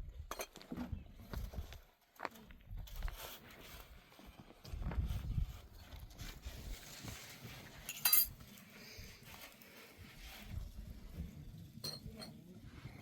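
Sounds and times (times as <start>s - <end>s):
bright metallic clink: 7.9s - 8.3s.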